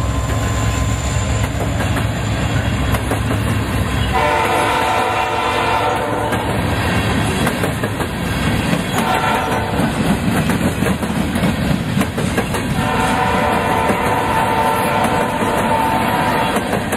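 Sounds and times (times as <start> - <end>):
freight train wheels clacking: 0.0 - 16.9
train horn: 4.0 - 6.7, 8.9 - 10.0, 12.8 - 16.9.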